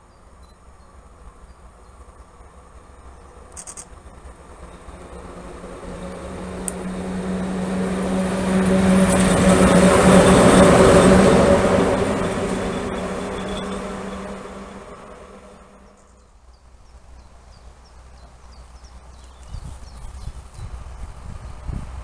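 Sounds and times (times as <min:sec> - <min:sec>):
electric locomotive humming: 0:00.0 - 0:16.2
wheels rushing on rails: 0:00.3 - 0:16.2.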